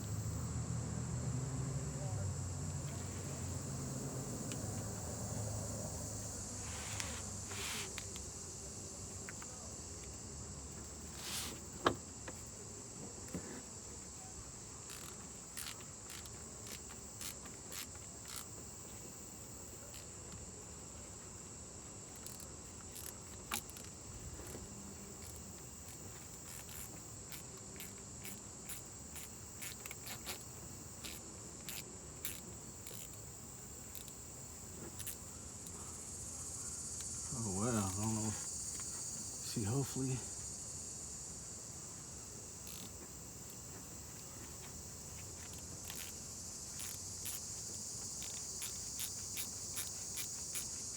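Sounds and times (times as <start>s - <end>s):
high-pitched insect chirring: 14.8s - 20.2s, 22.0s - 40.9s, 41.8s - 50.9s.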